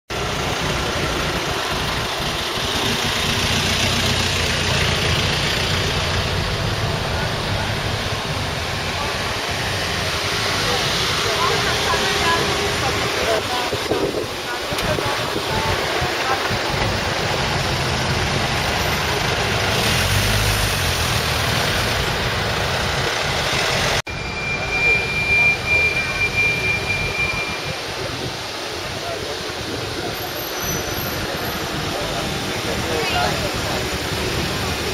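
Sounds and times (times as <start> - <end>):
car engine idling: 0.1 - 19.8
street traffic noise: 0.1 - 34.9.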